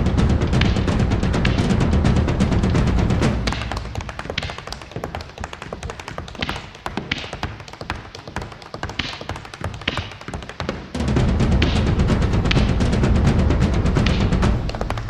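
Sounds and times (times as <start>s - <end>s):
music with heavy bass: 0.0s - 4.2s, 11.0s - 14.8s
firework bangs: 0.9s - 7.6s
hissing firework streaks: 1.4s - 7.6s
fireworks crackling and popping: 1.4s - 12.9s.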